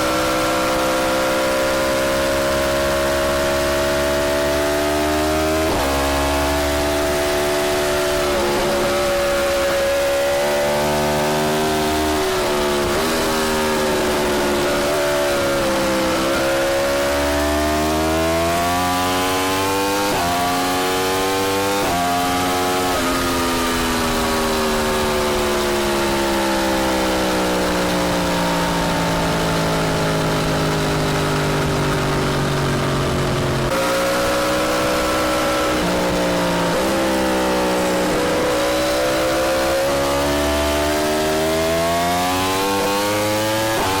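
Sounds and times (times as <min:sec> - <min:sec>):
sport motorcycle engine revving: 0:00.0 - 0:44.0.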